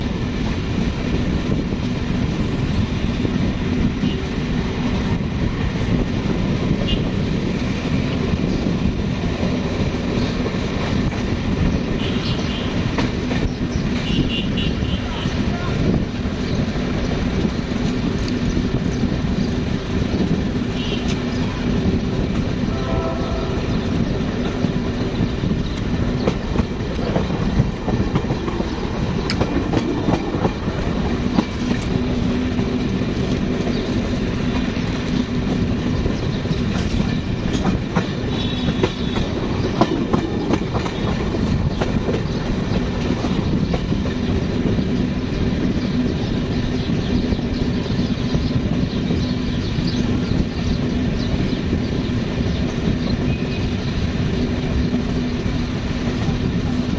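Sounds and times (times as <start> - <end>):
train rumble: 0.0 - 56.9
train wheels clattering: 23.7 - 56.9.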